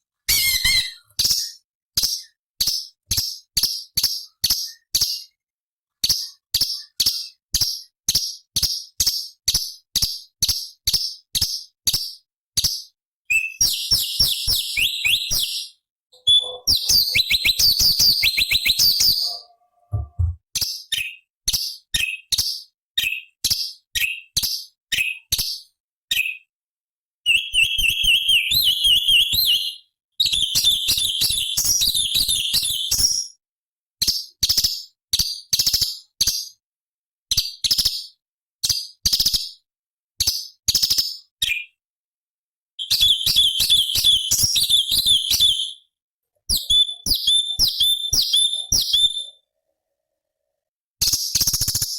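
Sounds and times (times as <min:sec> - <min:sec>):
bird chirping and trilling: 0:00.3 - 0:05.4, 0:12.6 - 0:22.6, 0:27.3 - 0:33.2, 0:42.8 - 0:45.8, 0:46.5 - 0:49.4.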